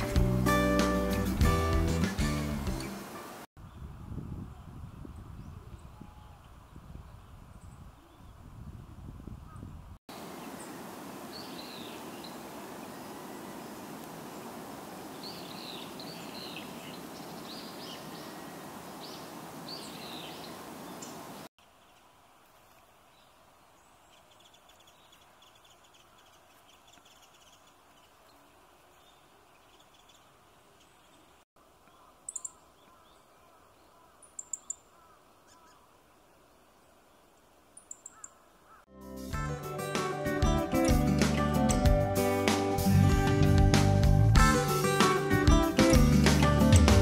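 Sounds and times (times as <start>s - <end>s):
small birds calling: 9.4s - 38.9s
steady hiss: 10.1s - 29.5s.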